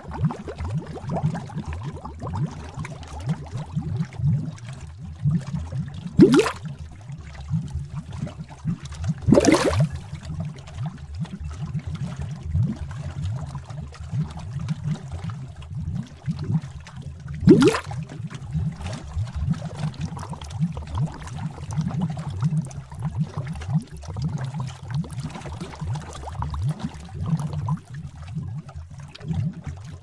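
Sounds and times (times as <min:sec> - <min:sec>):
liquid bubbling and gurgling: 0:00.0 - 0:30.0
large bubble bursting: 0:06.2 - 0:06.7, 0:09.2 - 0:10.1, 0:17.4 - 0:18.0.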